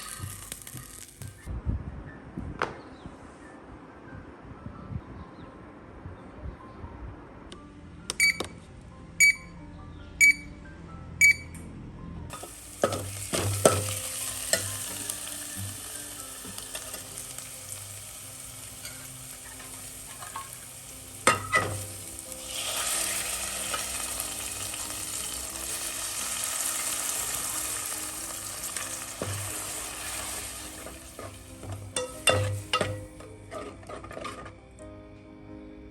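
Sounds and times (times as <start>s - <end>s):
food sizzling in hot oil: 0.0s - 1.4s, 12.4s - 33.1s
short beeps: 8.1s - 8.5s, 9.2s - 9.6s, 10.2s - 10.6s, 11.2s - 11.6s.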